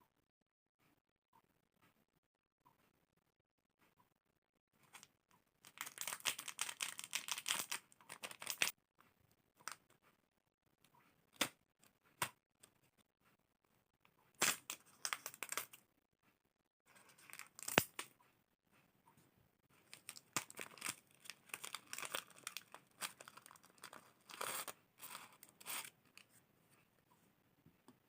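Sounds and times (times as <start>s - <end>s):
plastic packaging crinkling: 5.6s - 8.8s, 14.4s - 15.8s, 17.0s - 18.0s, 19.8s - 26.2s.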